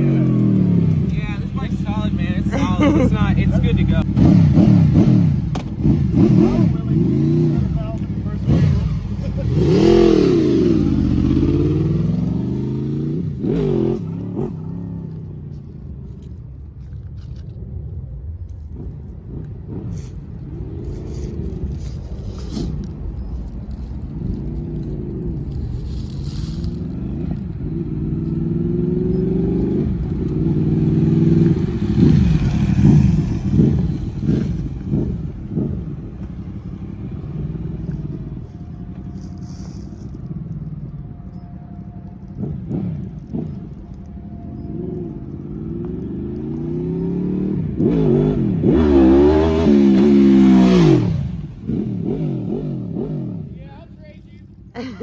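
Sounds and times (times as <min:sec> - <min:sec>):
motorcycle engine revving: 0:00.0 - 0:16.4, 0:18.7 - 0:55.0.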